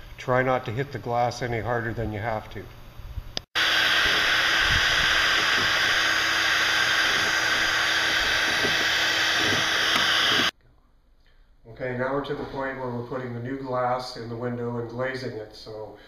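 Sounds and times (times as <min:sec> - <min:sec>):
power tool hissing: 0:03.5 - 0:10.5.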